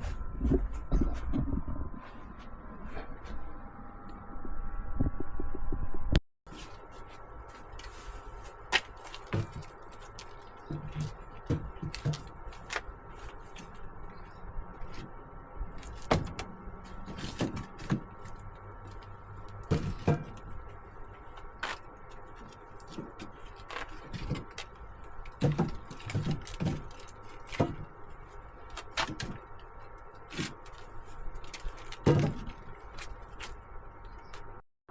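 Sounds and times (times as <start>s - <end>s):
loud low rumble: 0.0s - 6.2s
firewood logs knocking: 8.7s - 20.8s, 21.4s - 28.0s, 28.6s - 33.6s.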